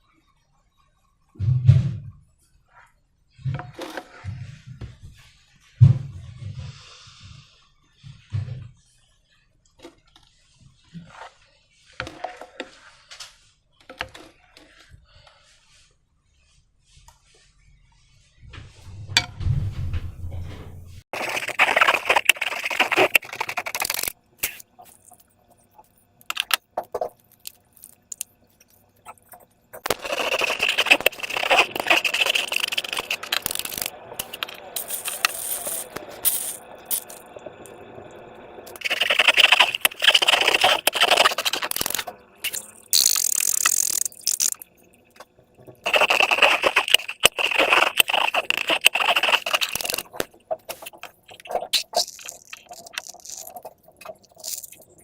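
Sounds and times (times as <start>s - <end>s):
slime crackly scraping: 21.1s - 37.2s, 38.7s - 44.6s, 45.8s - 55.0s.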